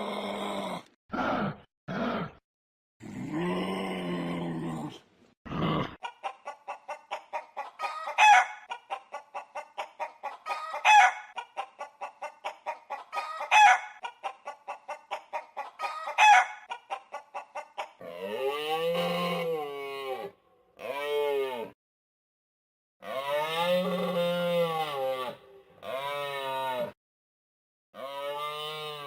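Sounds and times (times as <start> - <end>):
hen clucking and squawking: 5.8 - 21.5, 23.0 - 27.0, 28.0 - 29.0.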